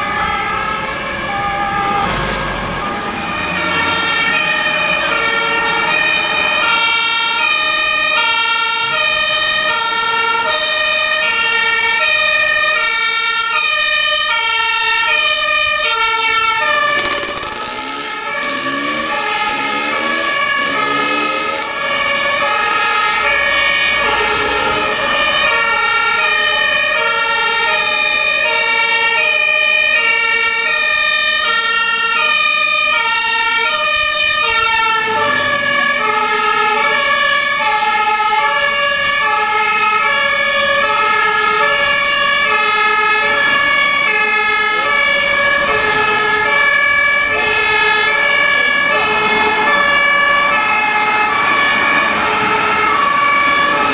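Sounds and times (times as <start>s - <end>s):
two-tone fire engine sirens: 0.0s - 53.9s.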